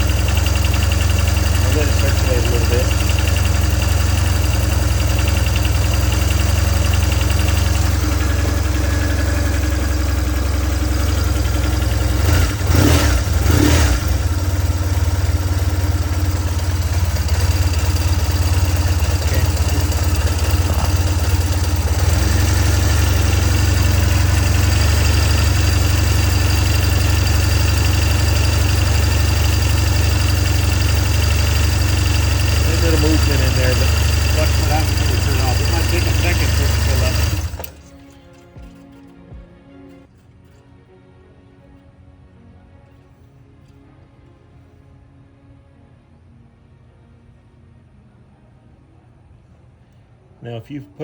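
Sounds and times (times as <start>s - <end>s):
motorcycle engine idling: 0.0s - 39.5s.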